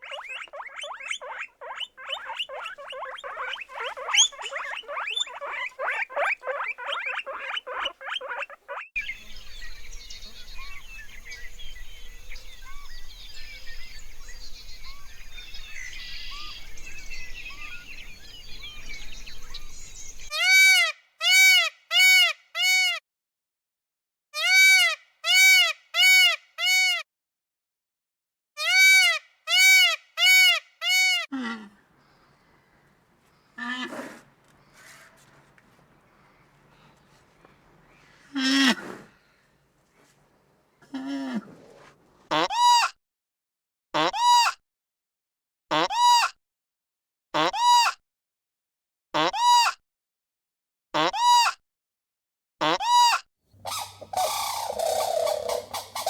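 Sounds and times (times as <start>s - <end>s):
rising and falling animal calls: 0.0s - 9.0s, 31.8s - 39.2s, 53.6s - 56.0s.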